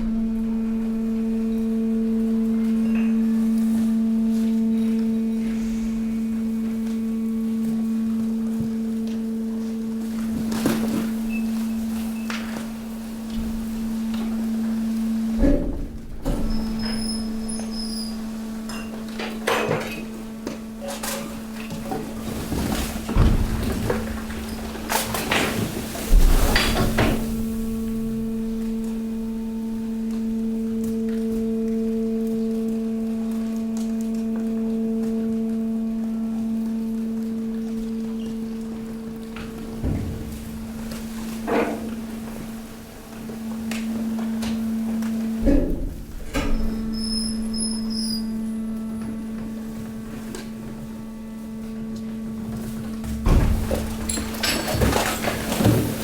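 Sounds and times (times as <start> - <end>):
hydraulic pump humming: 0.0 - 56.0
short high squeaks: 46.7 - 48.4.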